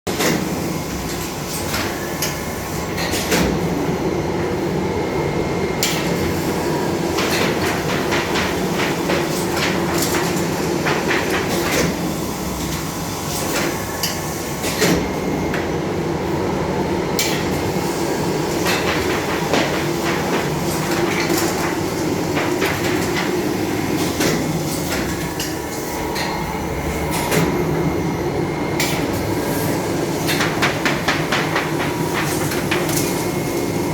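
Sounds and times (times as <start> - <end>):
mechanism clicks and clacks: 7.2 - 12.0, 18.5 - 26.4, 30.2 - 33.4.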